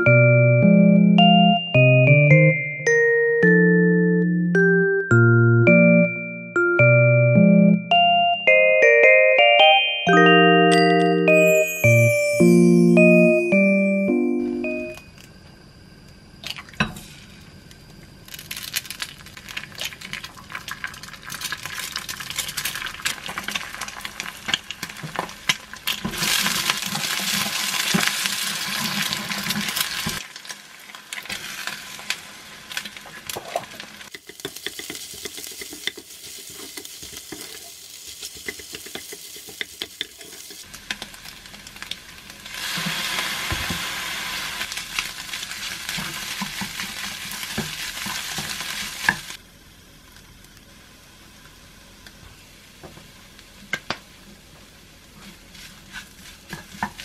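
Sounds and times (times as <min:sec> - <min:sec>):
eggs sizzling in oil: 0:18.3 - 0:49.4
spatula clicking against pan: 0:38.4 - 0:40.2.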